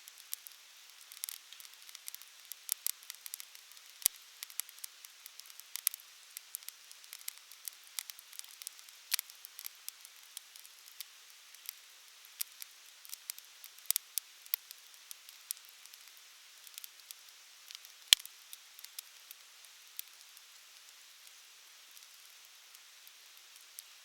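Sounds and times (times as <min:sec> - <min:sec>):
soft steady hiss: 0:00.0 - 0:24.0
campfire crackling: 0:00.2 - 0:06.0.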